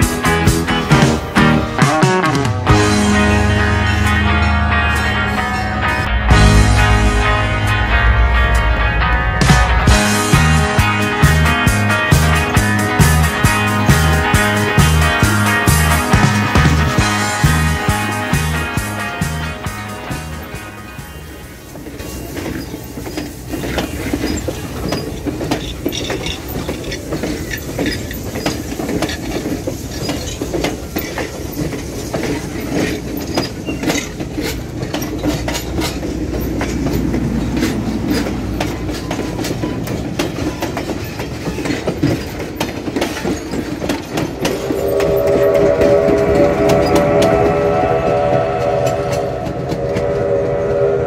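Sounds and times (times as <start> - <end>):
train coaches rumbling past: 0.0 - 51.0
wheel clicks over rail joints: 21.8 - 44.7
steam locomotive whistle: 44.1 - 51.0.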